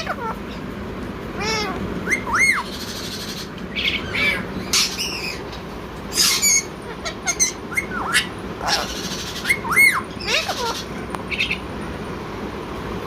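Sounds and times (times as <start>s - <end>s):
parakeet squawking: 0.0s - 0.7s, 1.3s - 11.7s.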